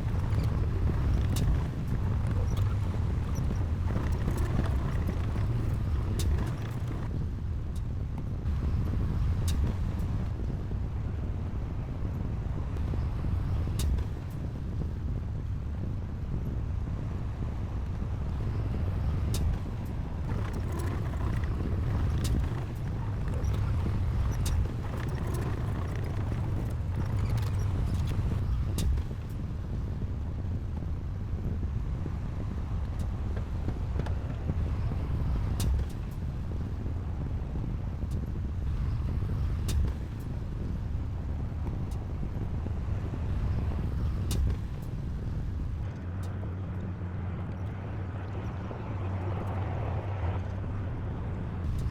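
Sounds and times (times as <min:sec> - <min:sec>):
diesel engine running: 0:00.0 - 0:07.1, 0:18.8 - 0:29.0.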